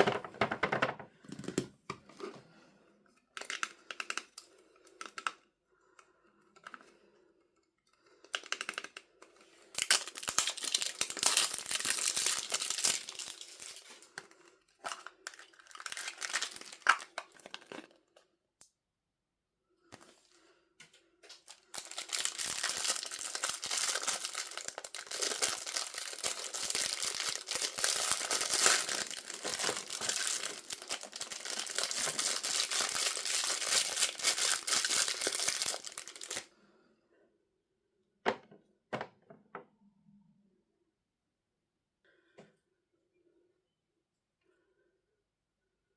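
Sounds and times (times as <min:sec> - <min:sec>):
packaging crinkling and tearing: 0:03.4 - 0:04.4, 0:09.7 - 0:18.0, 0:21.3 - 0:36.5.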